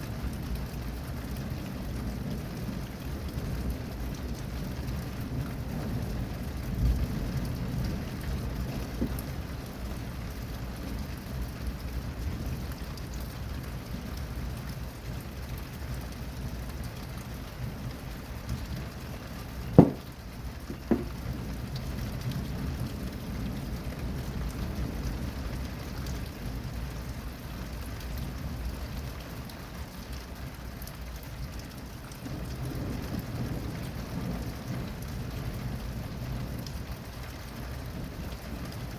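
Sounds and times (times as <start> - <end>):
steady rain falling: 0.0 - 38.9
sharp knocks: 9.0 - 9.2, 19.8 - 20.1, 20.7 - 21.2.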